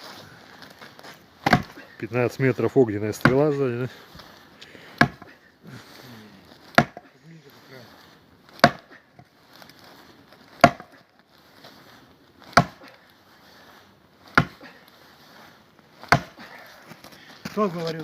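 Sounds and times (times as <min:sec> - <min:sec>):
axe chopping firewood: 0:01.4 - 0:02.0, 0:03.1 - 0:03.6, 0:04.9 - 0:05.4, 0:06.6 - 0:07.1, 0:08.5 - 0:09.3, 0:10.5 - 0:11.1, 0:12.4 - 0:13.0, 0:14.2 - 0:14.8, 0:16.0 - 0:16.7.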